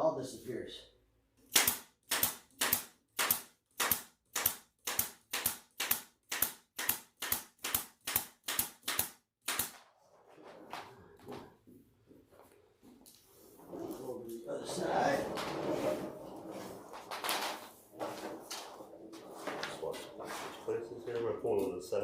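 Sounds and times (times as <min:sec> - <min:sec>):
staple gun firing: 0:01.5 - 0:09.8.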